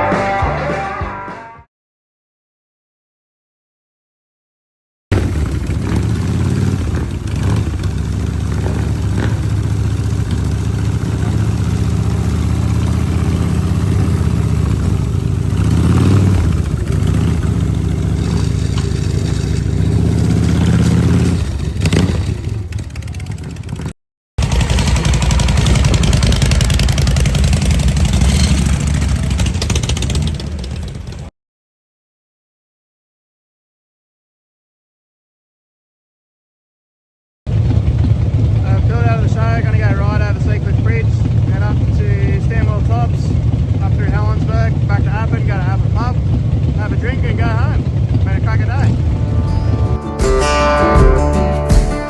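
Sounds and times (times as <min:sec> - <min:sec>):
motorcycle engine running: 0:05.1 - 0:31.3, 0:37.5 - 0:52.0.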